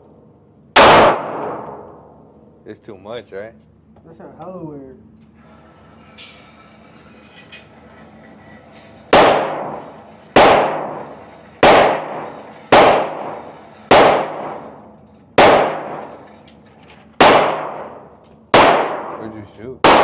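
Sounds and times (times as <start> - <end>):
handgun shots echoing: 0.8 - 2.0, 10.4 - 11.0, 15.4 - 16.0, 17.2 - 18.0, 18.6 - 20.0.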